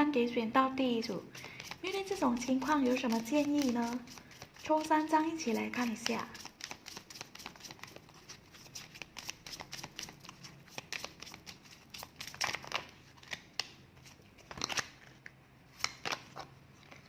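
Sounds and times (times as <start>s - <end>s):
cards shuffling rustle: 1.2s - 17.0s
cards clicking and flicking: 1.4s - 4.6s, 5.5s - 13.8s.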